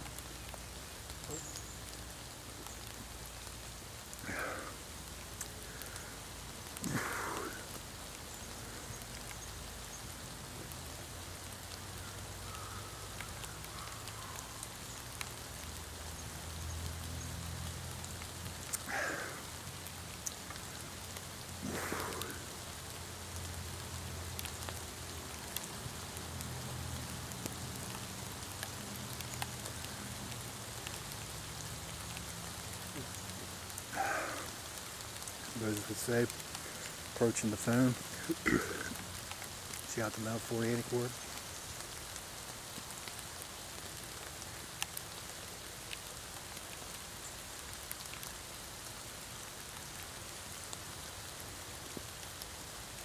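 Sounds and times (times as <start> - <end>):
rain falling on leaves: 0.0 - 53.0
man's short vocal sound: 38.2 - 39.0.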